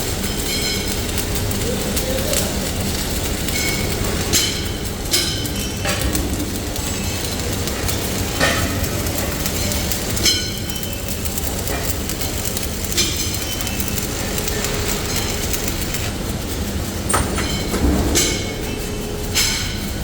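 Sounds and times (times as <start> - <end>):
heavy factory machinery rumbling: 0.0 - 20.0
sharp metal clanks: 11.8 - 20.0.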